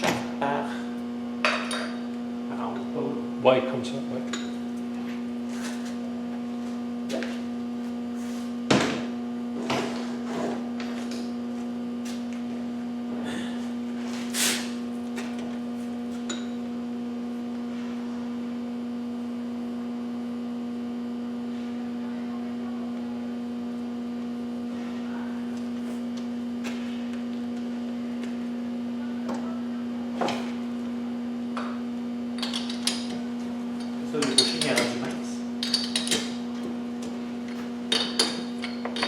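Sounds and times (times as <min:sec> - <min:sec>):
electrical hum of machinery: 0:00.0 - 0:39.0.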